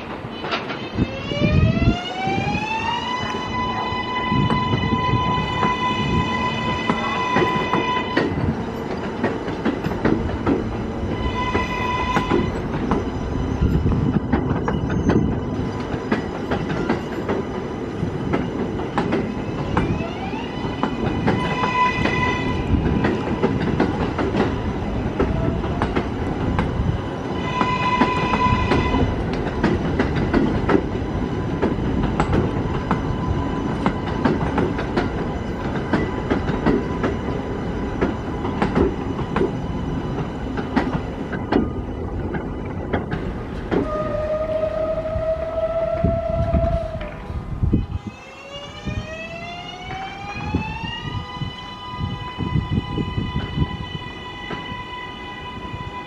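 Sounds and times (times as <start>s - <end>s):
subway train wheels clicking: 0.0s - 56.0s
train horn blasts: 3.0s - 8.4s, 11.1s - 12.7s, 21.3s - 22.8s, 27.4s - 29.2s, 43.8s - 48.0s.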